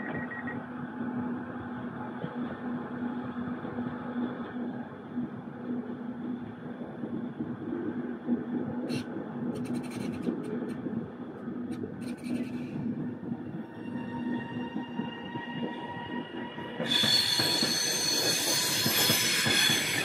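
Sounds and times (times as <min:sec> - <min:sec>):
train wheels rumbling on rail: 0:00.0 - 0:20.0
sharp clicks and scrapes: 0:08.9 - 0:10.8, 0:11.7 - 0:12.8
high wheel squeal: 0:16.6 - 0:20.0.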